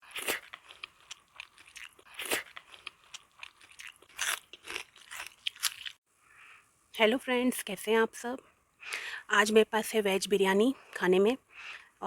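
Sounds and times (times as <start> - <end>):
crunching of crisp food chewed: 0.0 - 6.0.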